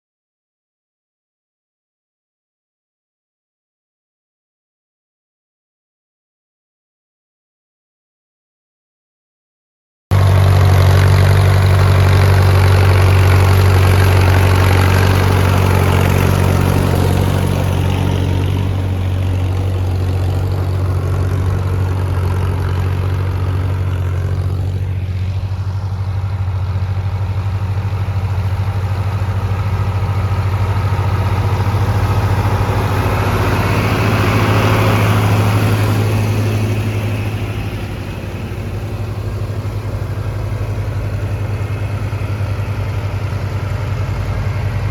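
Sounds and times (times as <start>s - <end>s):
tractor engine running: 10.1s - 44.9s.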